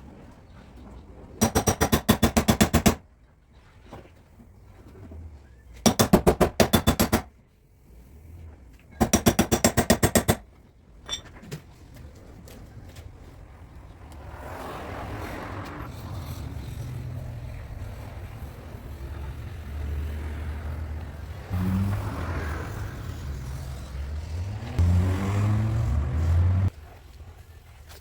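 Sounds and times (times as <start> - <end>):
hammering on sheet metal: 1.4 - 3.0
steady rushing noise: 13.1 - 26.3.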